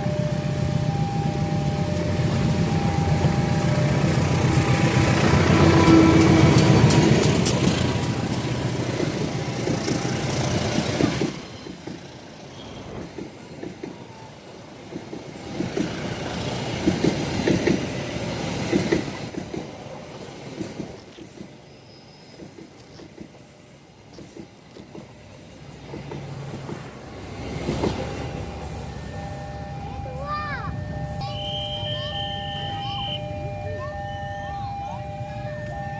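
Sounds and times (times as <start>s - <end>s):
train passing: 0.0s - 35.9s
wheels clattering over rails: 3.7s - 12.2s.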